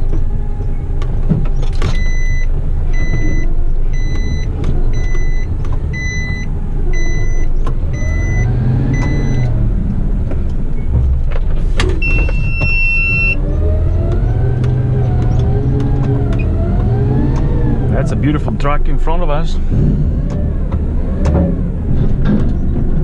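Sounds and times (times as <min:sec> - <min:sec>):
truck diesel engine running: 0:00.0 - 0:23.0
electronic warning beeper: 0:04.0 - 0:09.5, 0:12.0 - 0:13.4.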